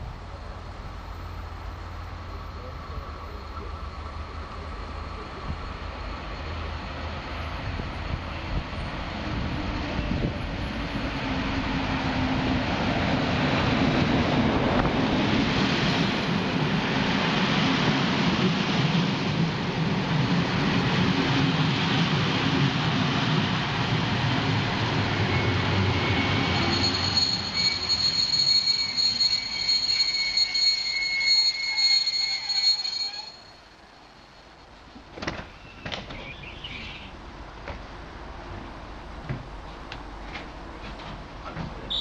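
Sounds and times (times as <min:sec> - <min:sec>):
train coaches rumbling past: 0:00.0 - 0:42.0
high brake squeal: 0:25.1 - 0:34.4, 0:35.5 - 0:37.0.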